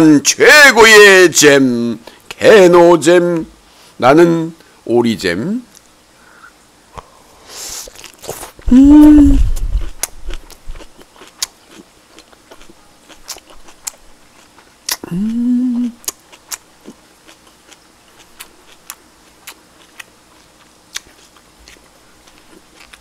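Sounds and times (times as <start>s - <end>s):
person chewing: 7.6s - 23.0s
person humming: 8.6s - 9.8s, 15.0s - 16.1s.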